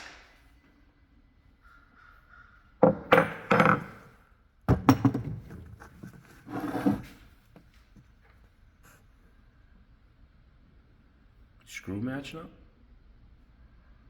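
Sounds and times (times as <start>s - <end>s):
knocks and clatters of tools: 2.8s - 7.1s
scraping rustle: 5.5s - 7.3s.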